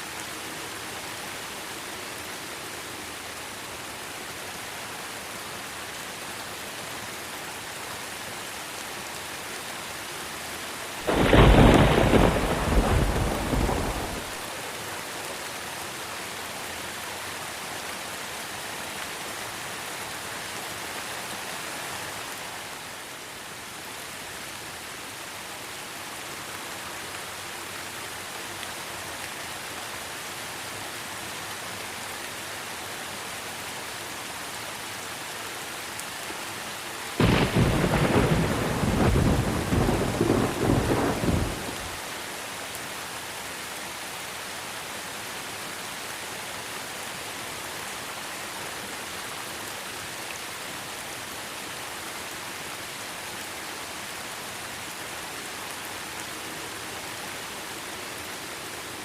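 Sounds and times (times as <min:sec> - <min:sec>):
heavy rain: 0:00.0 - 0:59.0
thunder clap rumbling: 0:11.1 - 0:14.3, 0:37.2 - 0:41.9.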